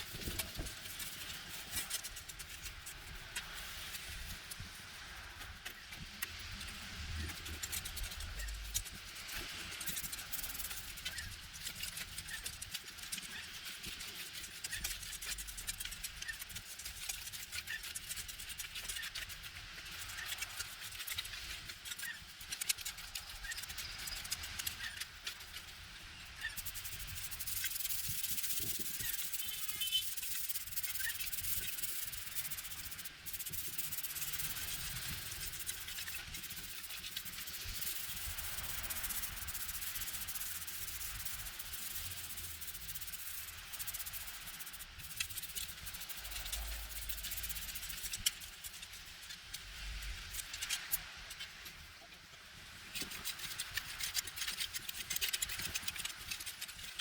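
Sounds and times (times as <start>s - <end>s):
abrasive scrubbing on a surface: 26.4s - 48.8s.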